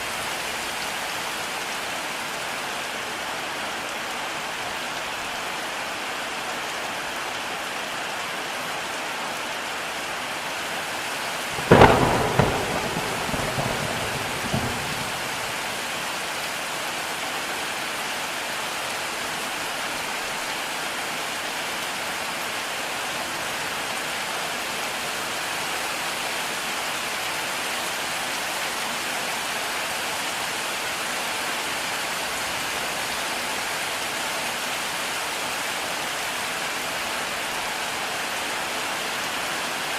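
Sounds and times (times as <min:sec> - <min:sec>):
heavy rain falling: 0:00.0 - 0:39.9
thunderclap rumbling: 0:11.6 - 0:16.0.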